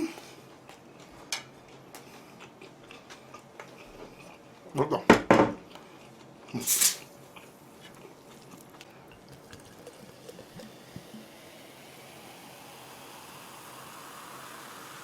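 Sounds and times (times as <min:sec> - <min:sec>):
person chewing food: 0:00.2 - 0:04.7, 0:05.6 - 0:10.6
brief hiss: 0:06.6 - 0:07.1.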